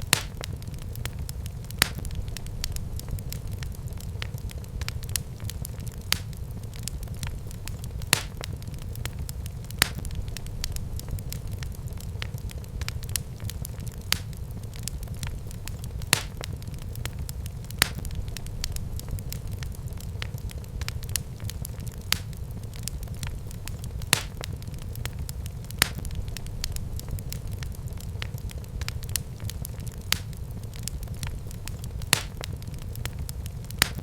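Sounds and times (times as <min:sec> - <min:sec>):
fire crackling and popping: 0:00.0 - 0:34.0
low rumble of flames: 0:00.0 - 0:34.0.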